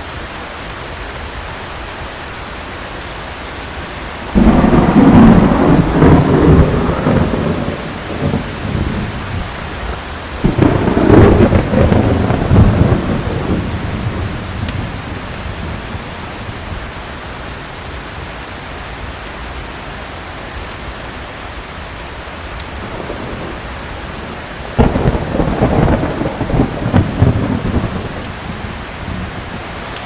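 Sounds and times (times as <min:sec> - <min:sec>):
heavy rain: 0:00.0 - 0:30.0
thunder rumbling: 0:03.8 - 0:17.2, 0:22.8 - 0:30.0
thunderclap: 0:04.3 - 0:16.8, 0:22.8 - 0:30.0.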